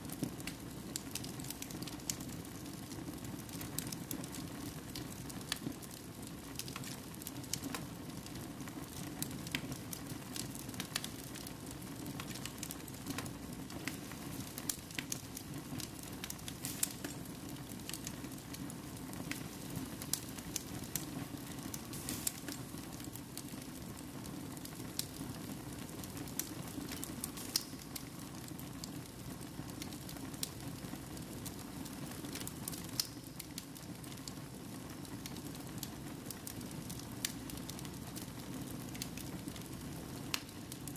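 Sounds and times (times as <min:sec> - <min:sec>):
low background noise: 0:00.0 - 0:40.9
wood fire crackling: 0:00.0 - 0:40.9.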